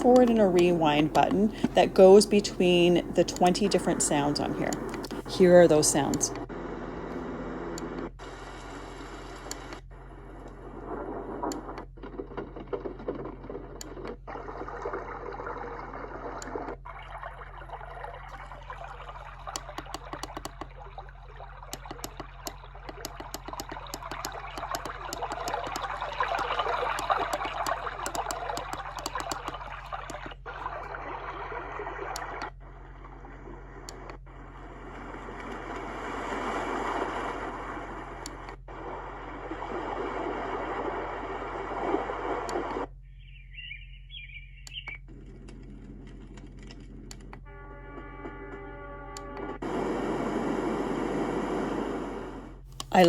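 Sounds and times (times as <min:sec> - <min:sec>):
white noise machine: 0:00.0 - 0:12.0, 0:16.2 - 0:43.1, 0:49.2 - 0:53.0
rapid crackling clicks: 0:00.0 - 0:15.0, 0:17.7 - 0:21.0, 0:21.6 - 0:35.9.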